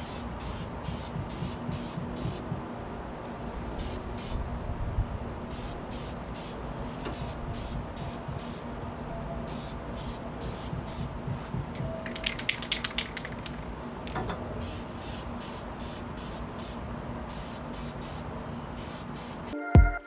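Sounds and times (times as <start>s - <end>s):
spray paint can hissing: 0.0s - 2.6s, 3.8s - 4.4s, 5.5s - 8.6s, 9.5s - 11.2s, 14.6s - 18.2s, 18.8s - 19.6s.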